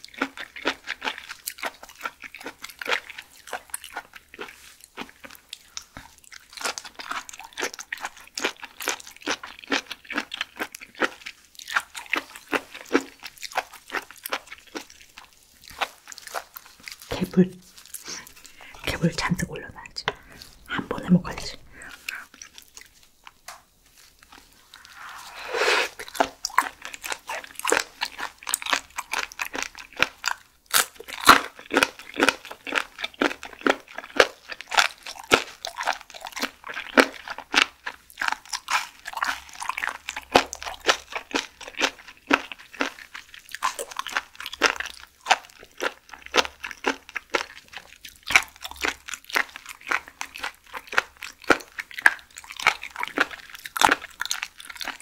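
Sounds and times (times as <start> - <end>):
wet crunchy chewing: 0.0 - 55.0.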